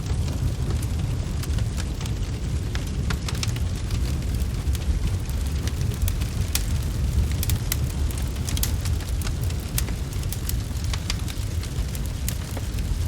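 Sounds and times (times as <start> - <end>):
fire rumbling: 0.0 - 13.0
wood fire crackling and popping: 0.0 - 13.0.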